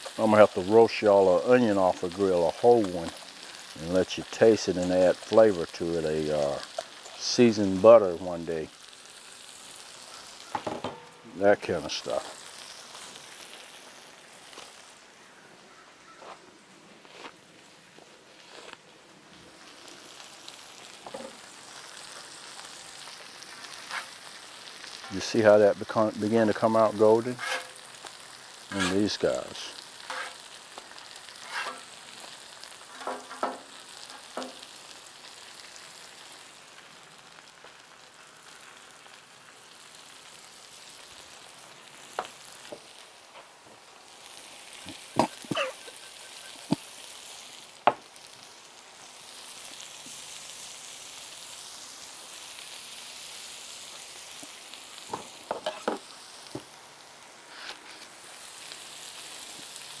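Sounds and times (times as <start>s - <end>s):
food sizzling on a griddle: 0.0s - 60.0s
metal spatula scraping griddle: 23.6s - 24.2s, 27.3s - 27.8s, 28.7s - 29.2s, 30.0s - 30.5s, 31.4s - 31.9s, 32.9s - 34.6s.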